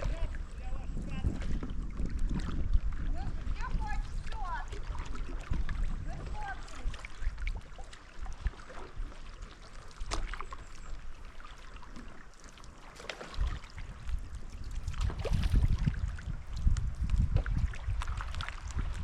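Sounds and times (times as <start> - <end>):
wind on microphone: 0.0 - 12.2, 13.1 - 19.0
paddle splashing in water: 0.0 - 19.0.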